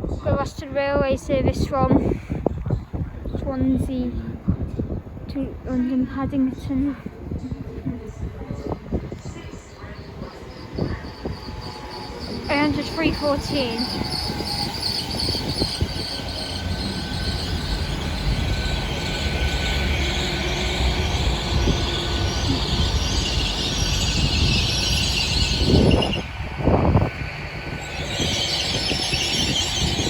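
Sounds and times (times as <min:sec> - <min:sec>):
train rumble: 0:00.0 - 0:30.0
high brake squeal: 0:10.2 - 0:26.4, 0:27.8 - 0:30.0.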